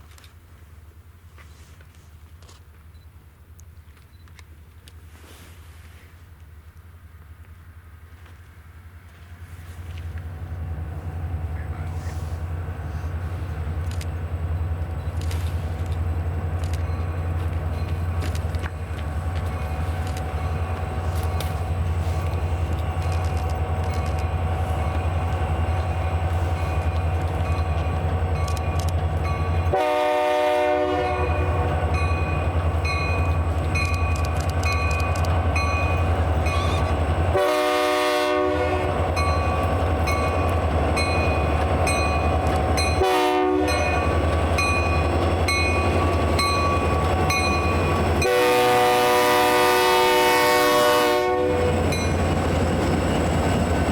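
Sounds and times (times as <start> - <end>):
locomotive engine rumble: 0.0 - 53.9
train horn blasts: 29.4 - 32.4, 35.9 - 39.4, 42.7 - 44.2, 47.8 - 52.0.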